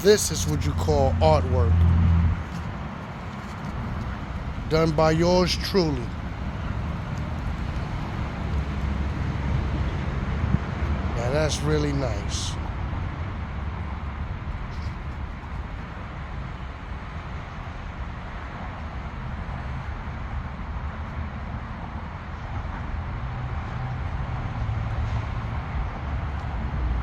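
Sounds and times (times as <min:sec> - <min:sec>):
steady low rumble: 0:00.0 - 0:13.4.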